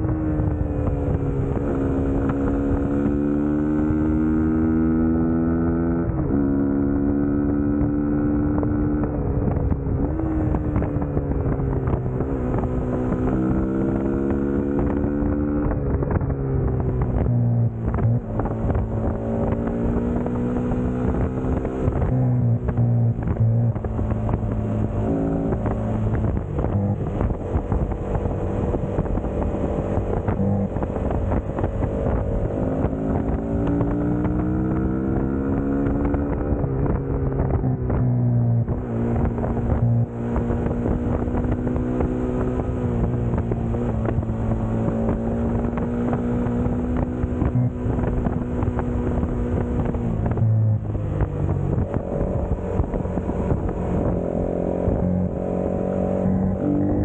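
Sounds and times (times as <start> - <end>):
motorcycle engine revving: 0.0 - 57.0
wind on microphone: 0.0 - 57.0.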